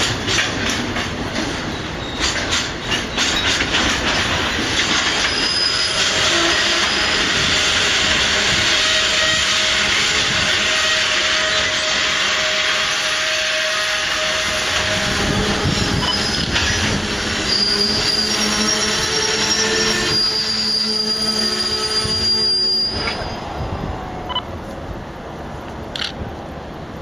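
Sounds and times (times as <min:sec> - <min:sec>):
train wheels rumbling on rails: 0:00.0 - 0:27.0
high wheel squeal: 0:05.1 - 0:23.6.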